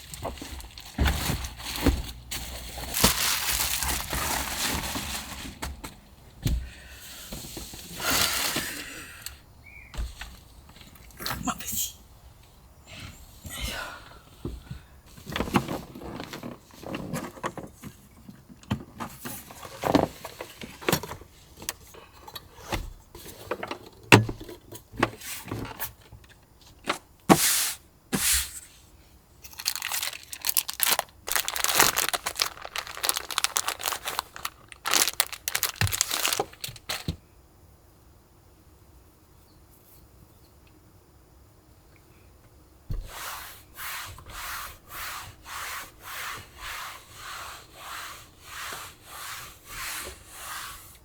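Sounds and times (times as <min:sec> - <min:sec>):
rustling and crinkling: 0:00.0 - 0:08.9, 0:15.1 - 0:27.0, 0:29.4 - 0:37.2.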